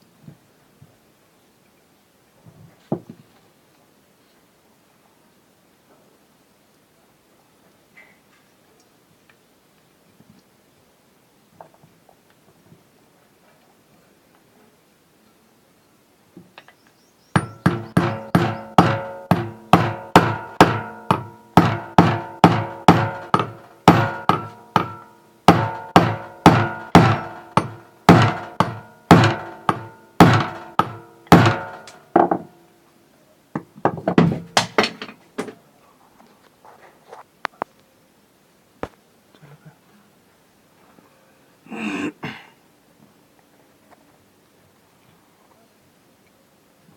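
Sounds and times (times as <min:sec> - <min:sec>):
hammer striking metal screw: 0:17.4 - 0:32.5.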